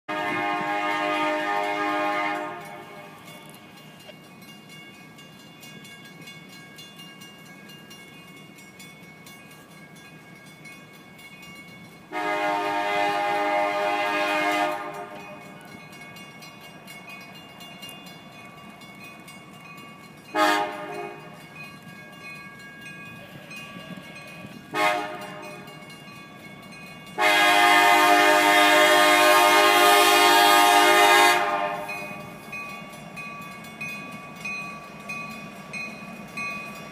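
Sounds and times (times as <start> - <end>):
locomotive air horn blasts: 0.1 - 3.3, 12.1 - 15.6, 20.3 - 21.4, 24.7 - 25.7, 27.2 - 32.2
train running noise: 0.1 - 36.9.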